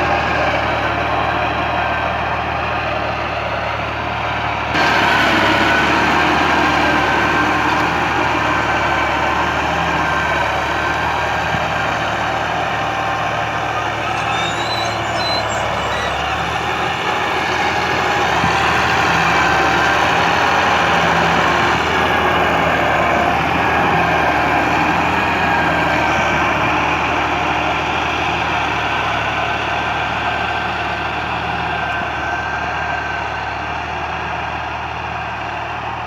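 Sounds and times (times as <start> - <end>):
tractor diesel engine running: 0.0 - 36.0
high squeaks: 11.4 - 18.0.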